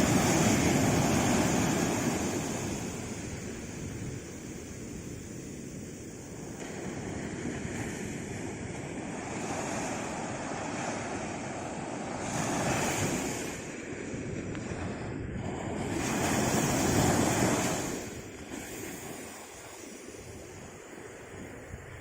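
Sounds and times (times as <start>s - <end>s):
sea waves washing on shore: 0.0s - 22.0s.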